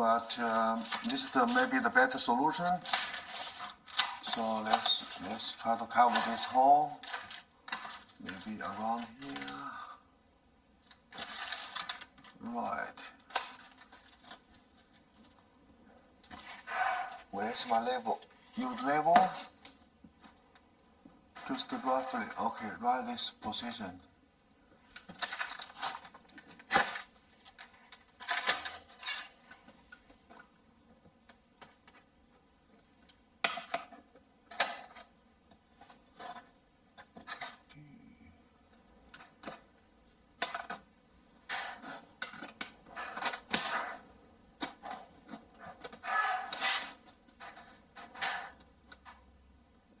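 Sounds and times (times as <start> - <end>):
rustles and scrapes against wall: 0.4 - 9.6, 16.2 - 20.5, 24.8 - 30.6, 33.4 - 37.7, 39.1 - 49.4.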